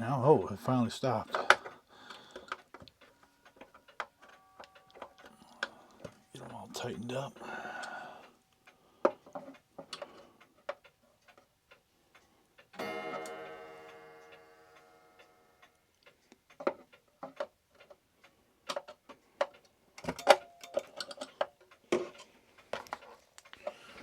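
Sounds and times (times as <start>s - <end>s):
small clicks and taps of screws: 8.6s - 12.8s, 16.0s - 23.7s.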